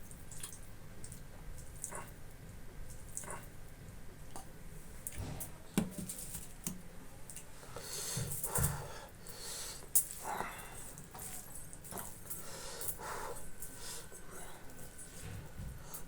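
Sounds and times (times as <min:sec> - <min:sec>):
wet smacks and mouth clicks: 0:00.1 - 0:02.2, 0:02.9 - 0:03.5
person chewing food: 0:00.1 - 0:04.5.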